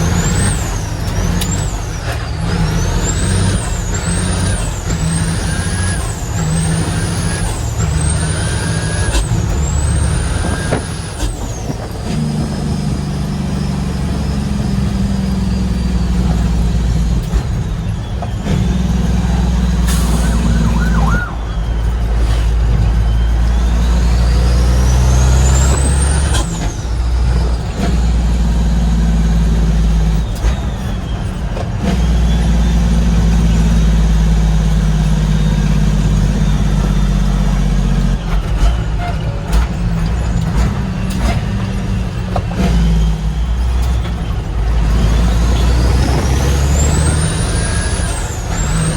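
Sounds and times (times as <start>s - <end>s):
high whistle: 0.0s - 11.3s, 15.2s - 27.2s
diesel truck engine pulling: 0.0s - 48.9s.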